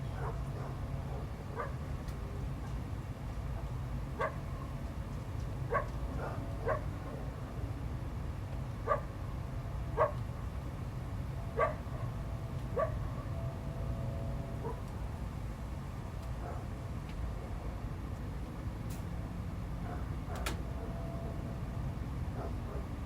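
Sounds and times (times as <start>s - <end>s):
dog barking: 0.2s - 1.8s, 4.2s - 4.4s, 5.7s - 7.0s, 8.9s - 9.1s, 10.0s - 10.2s, 11.6s - 11.8s, 12.8s - 13.0s, 19.8s - 20.4s, 22.4s - 22.9s.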